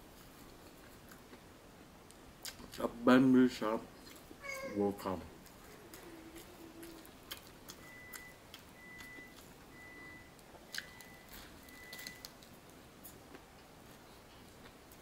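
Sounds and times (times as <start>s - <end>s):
crunchy sandwich chewing: 5.4s - 9.5s, 10.5s - 15.0s
faint high steady tone: 7.8s - 12.3s.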